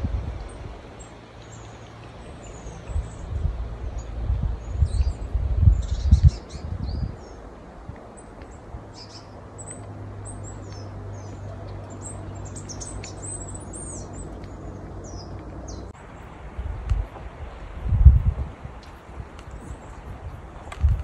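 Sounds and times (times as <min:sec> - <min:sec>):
small birds chirping: 0:00.4 - 0:16.3.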